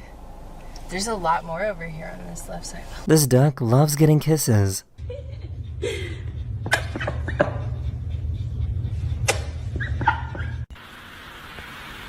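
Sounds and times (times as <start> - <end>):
low steady rumble: 0.0 - 3.1, 4.9 - 10.7
kiss smacks: 9.2 - 9.6.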